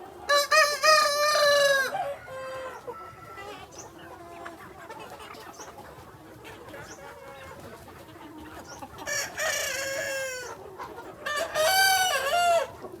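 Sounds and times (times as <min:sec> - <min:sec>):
chickens clucking: 0:00.0 - 0:13.0
rooster crowing: 0:00.4 - 0:02.6.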